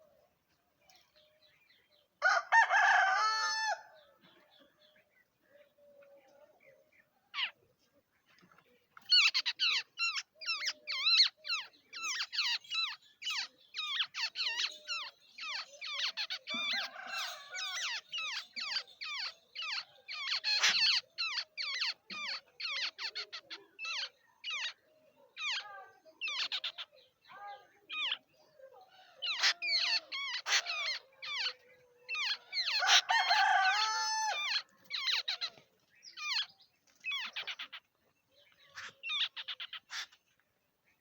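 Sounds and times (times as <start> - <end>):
babblers calling: 7.3 - 7.6, 9.0 - 40.4.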